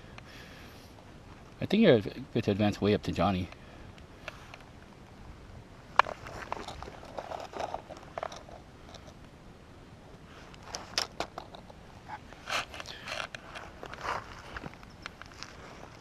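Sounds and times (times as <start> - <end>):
gear scraping and rustling: 6.0 - 9.2, 10.3 - 16.0
footsteps crunching on dry ground: 12.3 - 16.0.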